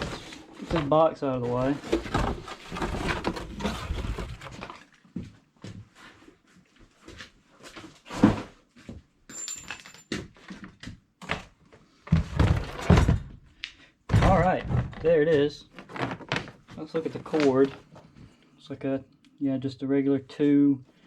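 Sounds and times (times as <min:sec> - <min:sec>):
box knocks and bumps: 0:00.0 - 0:04.8, 0:12.1 - 0:13.4, 0:14.1 - 0:16.7
cardboard packaging rustling: 0:00.0 - 0:05.0, 0:15.6 - 0:18.1.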